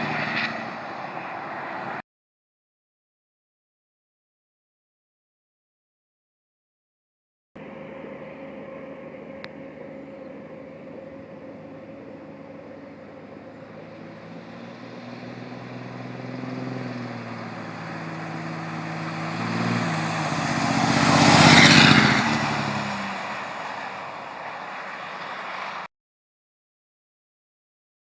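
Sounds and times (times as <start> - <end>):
diesel truck passing by: 0.0 - 2.0, 7.6 - 25.9.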